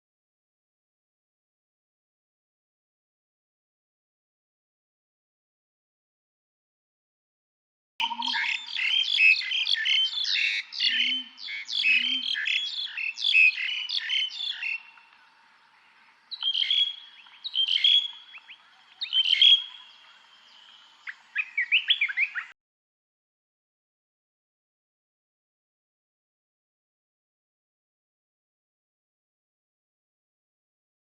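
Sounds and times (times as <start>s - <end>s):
faint low bird calls: 8.0s - 22.6s
songbirds singing: 8.0s - 22.6s.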